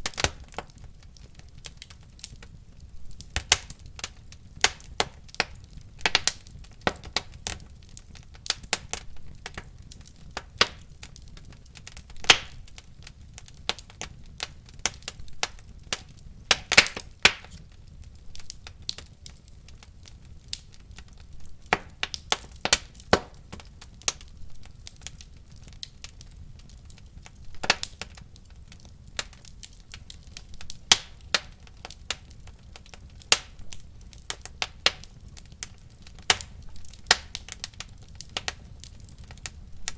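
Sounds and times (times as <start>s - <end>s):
fire pops and snaps: 0.0s - 39.9s
low rumble of flames: 0.0s - 39.9s.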